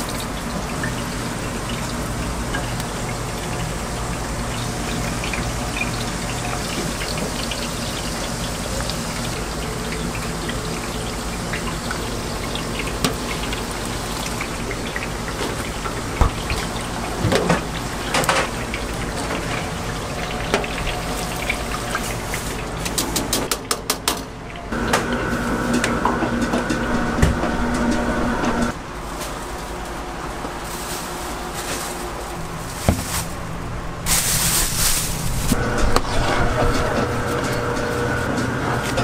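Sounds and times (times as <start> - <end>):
dough frying in hot oil: 0.0 - 23.8.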